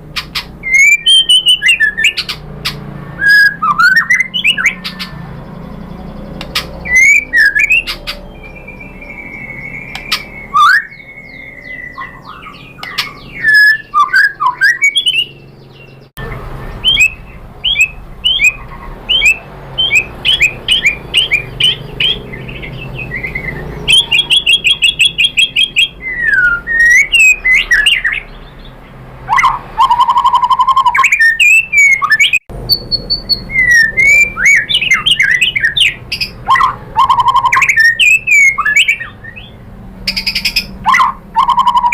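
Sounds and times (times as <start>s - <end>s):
bird singing whistled phrases: 0.6s - 2.4s, 3.1s - 28.3s, 29.3s - 41.9s.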